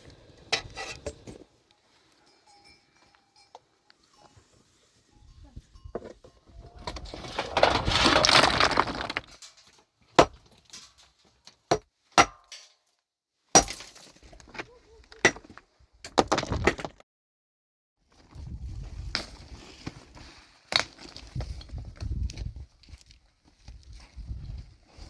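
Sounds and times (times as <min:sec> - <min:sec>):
rough rustling: 0:06.6 - 0:09.6.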